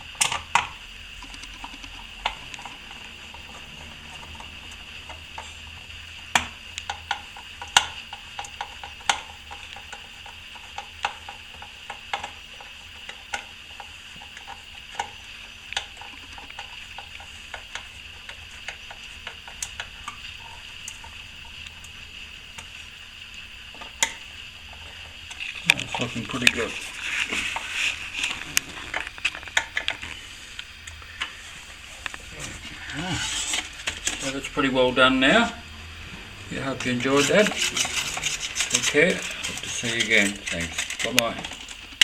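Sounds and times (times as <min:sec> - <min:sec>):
steady high hiss: 0:00.0 - 0:42.0
hand tools clicking and scraping: 0:23.8 - 0:35.6, 0:36.5 - 0:42.0.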